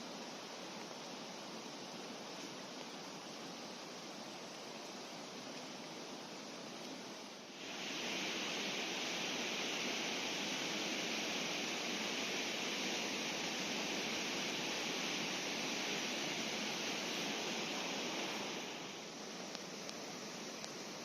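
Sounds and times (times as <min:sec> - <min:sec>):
river water rushing: 0:02.6 - 0:21.0.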